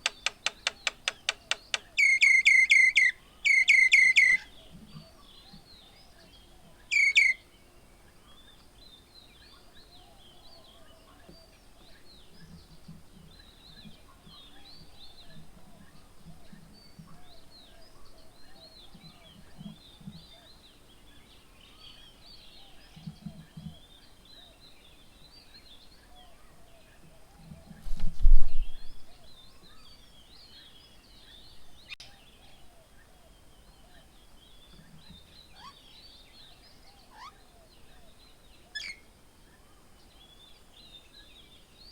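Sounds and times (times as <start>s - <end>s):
loud bird call: 0.0s - 4.5s, 6.9s - 7.4s
small birds chirping: 0.0s - 41.9s.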